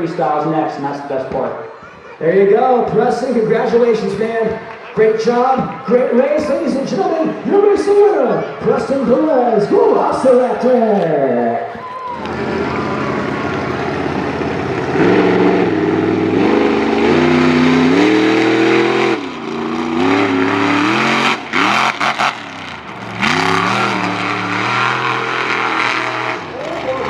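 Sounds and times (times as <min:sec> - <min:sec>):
truck engine revving loudly: 0:12.2 - 0:27.0.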